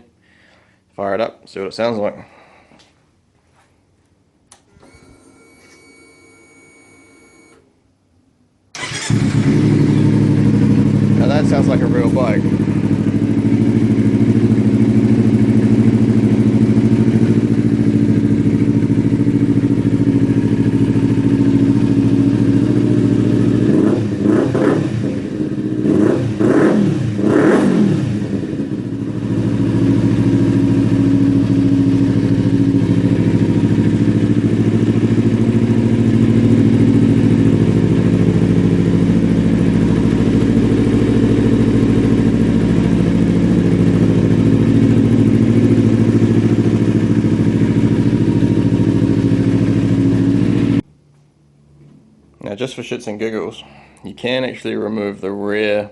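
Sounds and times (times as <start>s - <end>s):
motorcycle engine idling and revving: 8.8s - 50.9s.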